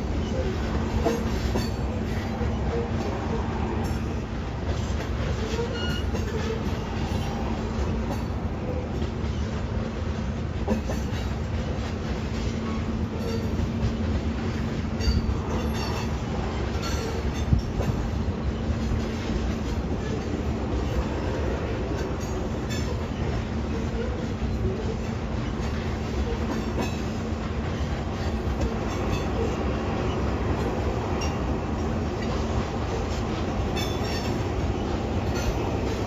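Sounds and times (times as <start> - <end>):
train wheels rumbling on rails: 0.0 - 36.0
high wheel squeals: 5.3 - 7.5.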